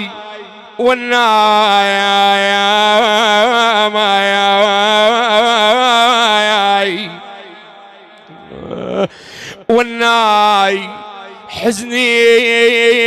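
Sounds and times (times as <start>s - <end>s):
man singing a long lament note: 0.0s - 7.5s.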